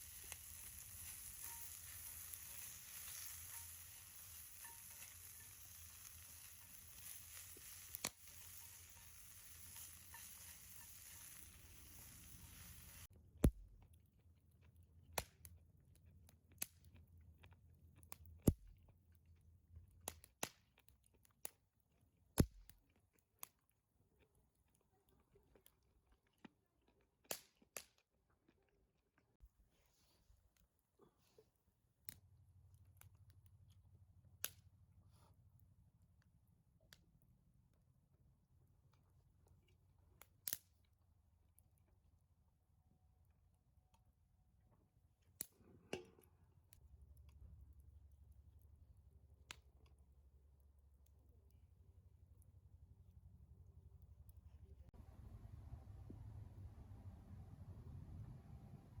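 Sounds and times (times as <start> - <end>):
food sizzling in a pan: 0.0 - 13.1.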